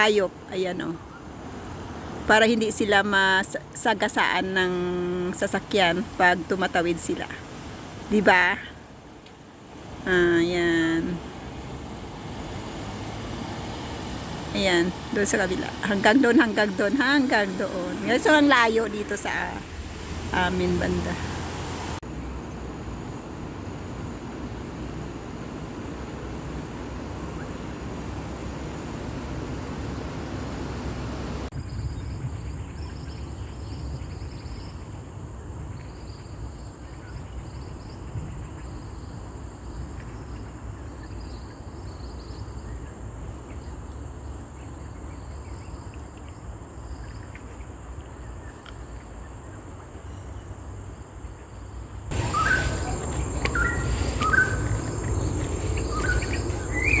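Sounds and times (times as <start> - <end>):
bird chirps: 52.1 - 57.0
high-pitched insect drone: 52.1 - 57.0.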